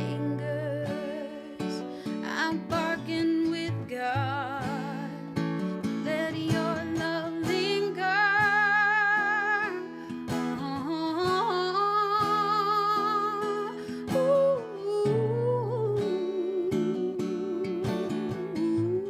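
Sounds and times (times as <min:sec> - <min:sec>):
strummed acoustic guitar: 0:00.0 - 0:19.0
woman singing wordless notes: 0:00.0 - 0:19.0.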